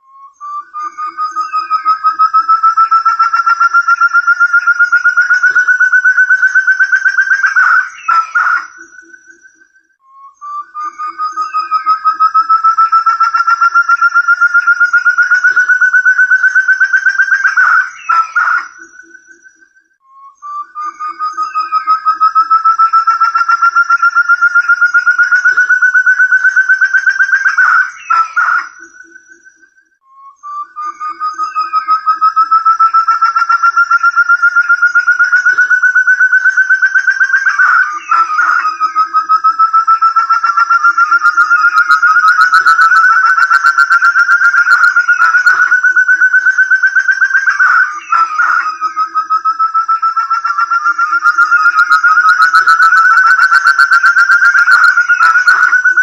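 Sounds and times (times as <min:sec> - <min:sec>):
partridge rapid whistled calls: 0:00.0 - 0:56.0.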